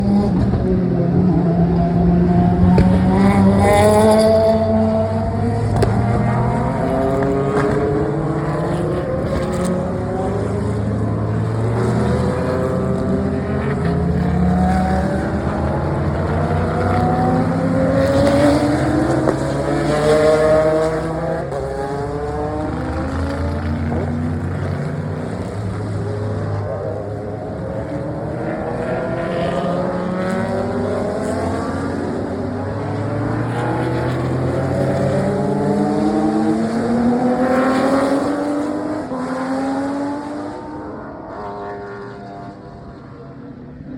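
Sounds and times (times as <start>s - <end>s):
race cars passing by: 0.0s - 43.9s.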